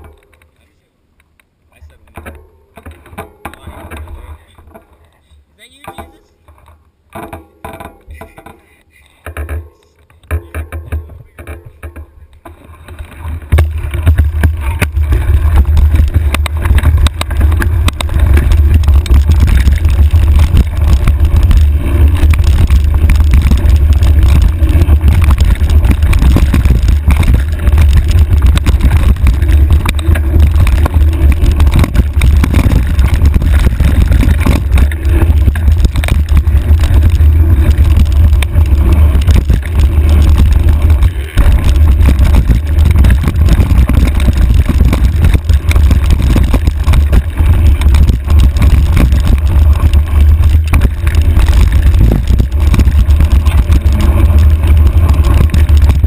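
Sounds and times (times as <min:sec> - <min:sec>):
constant rattling: 0:00.0 - 0:56.0
trail vibration rumble: 0:01.8 - 0:56.0
wind buffeting: 0:12.9 - 0:56.0.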